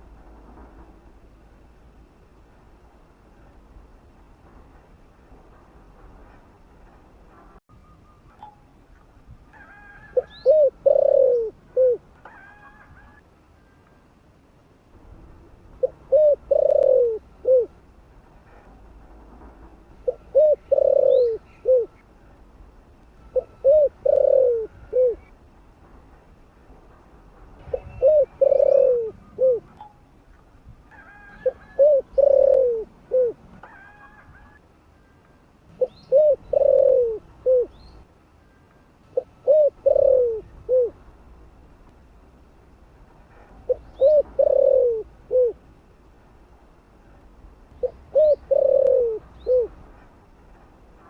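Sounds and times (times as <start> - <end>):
dove cooing: 9.6 - 13.2, 15.8 - 17.8, 20.0 - 22.0, 23.3 - 25.3, 27.7 - 29.8, 31.0 - 34.6, 35.7 - 37.8, 39.1 - 41.0, 43.3 - 45.6, 47.8 - 49.8.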